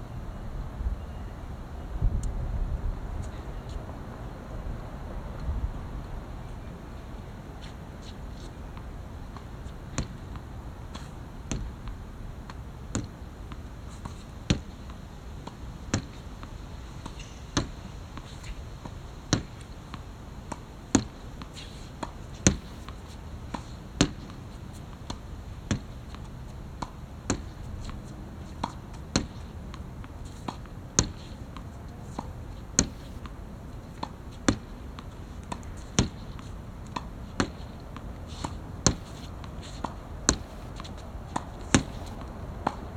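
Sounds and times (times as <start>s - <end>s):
racket striking shuttlecock: 28.6s - 33.3s, 38.3s - 42.9s.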